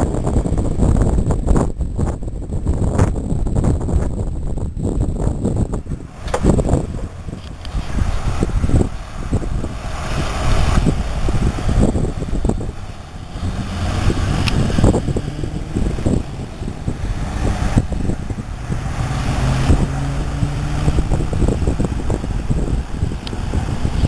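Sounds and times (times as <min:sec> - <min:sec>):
road noise rumble: 0:00.0 - 0:24.0
vehicle engine running: 0:05.2 - 0:24.0.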